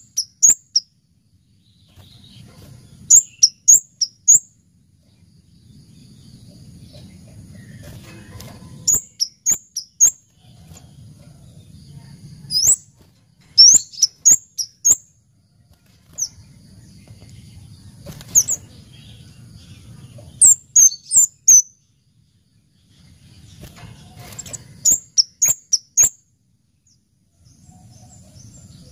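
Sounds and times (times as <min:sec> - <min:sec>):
bird calling high-pitched chips: 0:00.0 - 0:00.9, 0:03.1 - 0:04.4, 0:07.9 - 0:10.2, 0:12.5 - 0:12.8, 0:13.6 - 0:15.0, 0:18.2 - 0:18.7, 0:20.4 - 0:21.7, 0:24.2 - 0:26.2.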